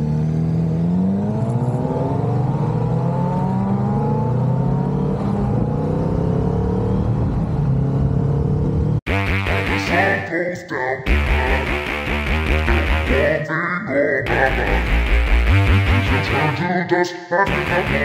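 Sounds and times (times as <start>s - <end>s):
motorcycle engine accelerating: 0.0s - 10.0s, 11.1s - 13.3s, 14.3s - 16.5s
rock music: 9.1s - 10.4s, 11.1s - 13.5s, 14.3s - 16.6s, 17.5s - 18.0s.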